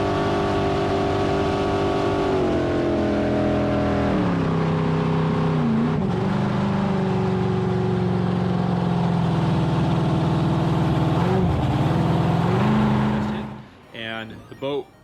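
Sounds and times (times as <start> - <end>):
boat engine running at high revs: 0.0 - 13.8.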